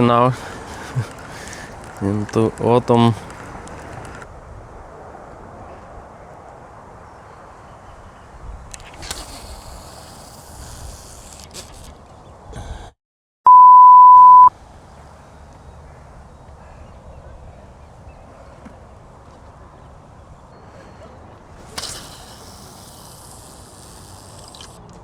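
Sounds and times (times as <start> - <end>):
low outdoor background: 0.0 - 25.0
loud electronic beep: 13.5 - 14.5.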